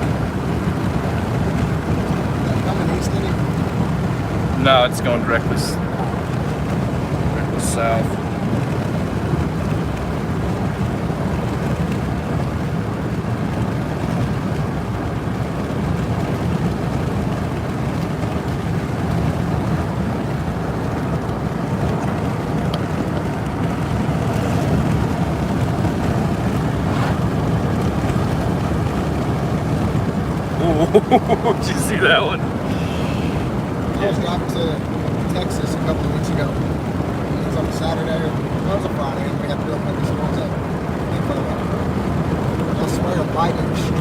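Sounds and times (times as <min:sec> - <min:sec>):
truck engine: 0:00.0 - 0:14.6, 0:15.4 - 0:44.0
wind noise: 0:00.0 - 0:31.8
tyre road noise: 0:00.0 - 0:44.0.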